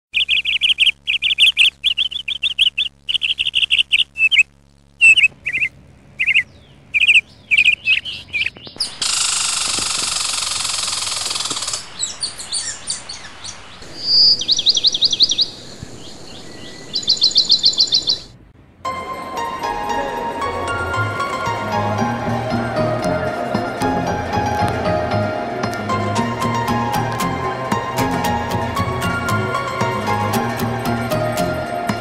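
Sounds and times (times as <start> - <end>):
songbirds chirping and trilling: 0.1 - 18.6.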